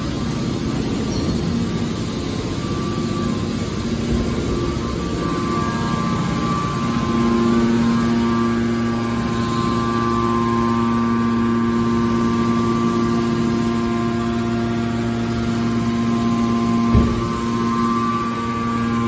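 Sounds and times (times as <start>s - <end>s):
hydraulic power unit humming: 0.0s - 19.0s.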